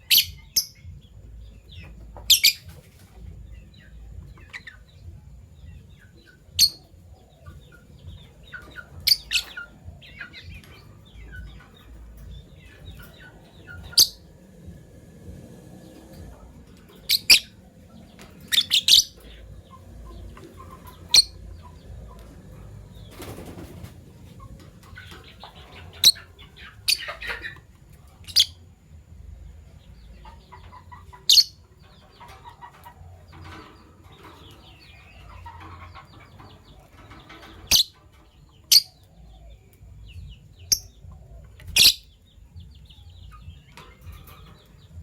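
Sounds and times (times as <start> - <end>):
soft bird twittering: 0.0 - 23.7.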